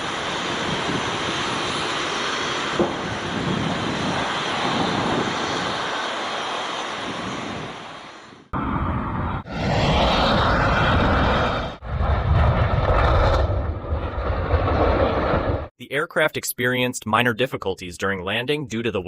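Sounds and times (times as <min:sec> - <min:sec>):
aircraft engine noise: 0:00.0 - 0:13.4
jet engine roar: 0:00.0 - 0:15.7.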